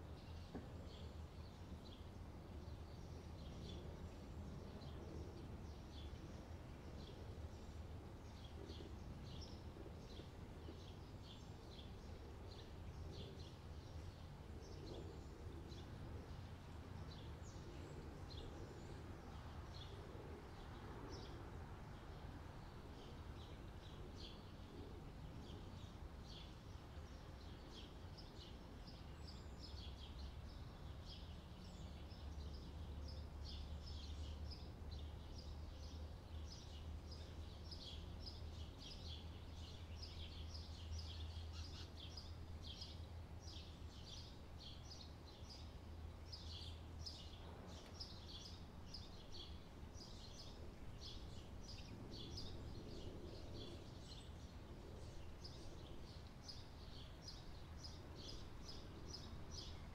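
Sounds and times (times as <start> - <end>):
low steady hum: 0.0 - 59.9
small birds chirping: 22.0 - 59.9.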